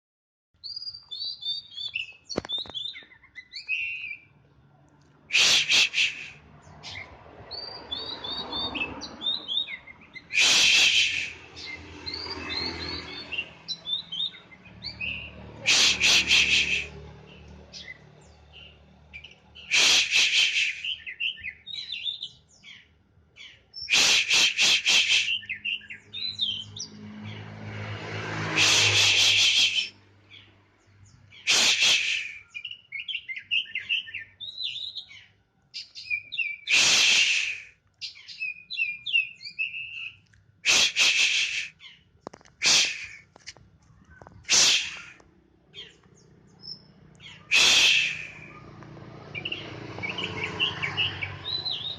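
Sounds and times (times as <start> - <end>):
bird twittering and warbling: 0.6 - 4.4, 5.4 - 27.5, 28.6 - 51.9
bird singing: 0.6 - 4.8, 5.4 - 27.6, 28.8 - 36.7, 37.9 - 40.5, 41.7 - 51.9.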